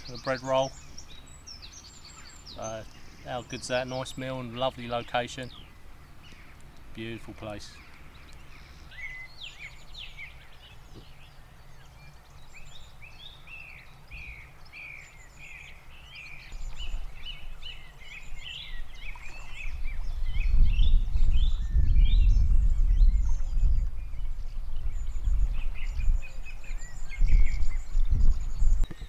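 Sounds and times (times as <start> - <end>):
songbirds chirping and singing: 0.0 - 29.0
low rumble: 18.9 - 28.9.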